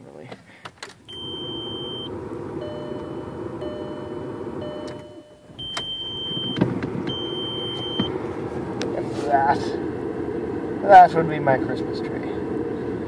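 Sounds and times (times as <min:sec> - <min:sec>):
dashboard warning chime beeping: 0:01.1 - 0:08.4
low running noise: 0:01.1 - 0:13.0
clicks: 0:04.8 - 0:08.2.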